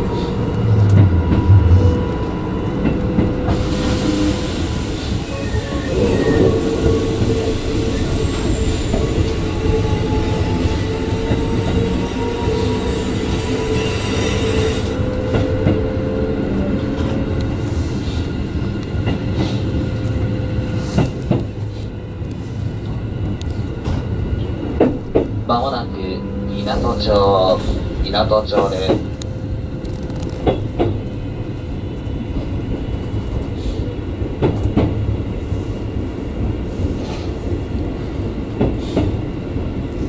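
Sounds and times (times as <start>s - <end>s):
train wheels rumbling on rail: 0.0s - 40.0s
clacks over rail joints: 29.8s - 31.0s, 34.4s - 35.0s.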